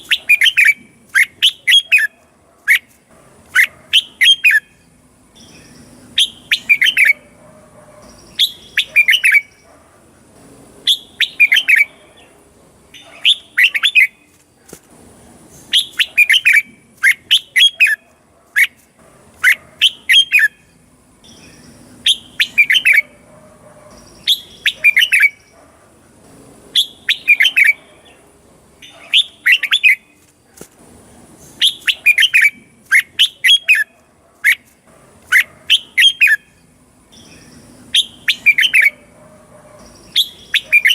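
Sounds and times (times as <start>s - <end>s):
bird singing warbled whistles: 0.0s - 2.9s, 3.6s - 4.8s, 5.4s - 7.3s, 8.1s - 9.6s, 10.9s - 11.9s, 13.0s - 14.3s, 15.7s - 18.0s, 19.4s - 20.6s, 21.3s - 23.2s, 24.0s - 25.5s, 26.8s - 27.8s, 28.8s - 30.1s, 31.6s - 33.9s, 35.3s - 36.5s, 37.1s - 39.1s, 39.8s - 40.9s.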